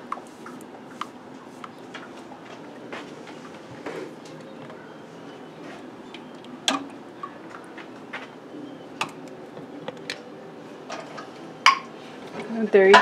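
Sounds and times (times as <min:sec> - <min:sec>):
canning lids pinging: 0:06.1 - 0:08.3, 0:09.0 - 0:12.0, 0:12.6 - 0:13.0.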